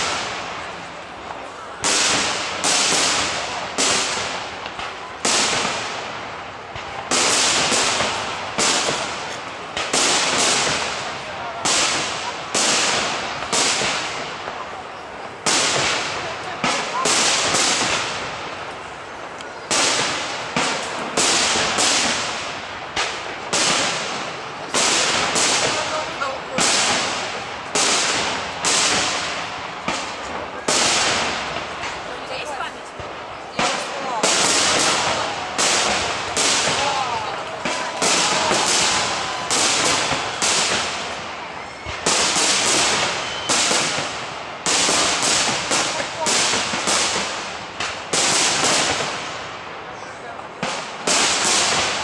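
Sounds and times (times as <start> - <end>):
firework bangs echoing: 0.0 - 52.0
firework shells bursting: 33.0 - 49.5.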